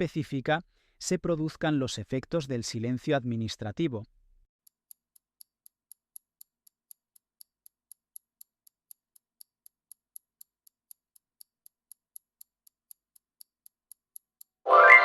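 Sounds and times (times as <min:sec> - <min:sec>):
timer ticking: 0:04.6 - 0:14.6.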